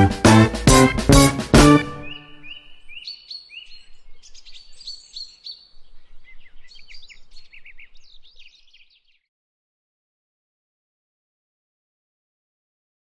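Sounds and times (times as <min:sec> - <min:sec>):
small birds chirping and singing: 0:01.7 - 0:09.3.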